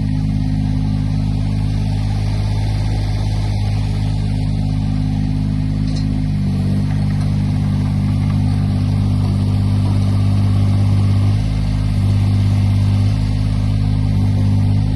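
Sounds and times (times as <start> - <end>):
excavator diesel engine running: 0.0 - 14.9.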